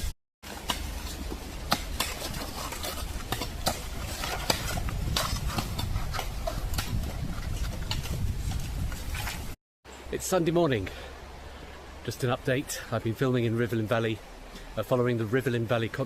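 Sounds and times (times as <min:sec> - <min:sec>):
spades scraping stony ground: 0:00.4 - 0:09.6.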